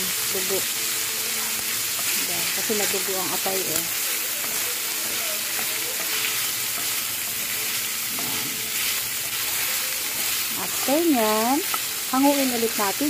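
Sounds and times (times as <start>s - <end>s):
liver sizzling in frying pan: 0.0s - 13.0s.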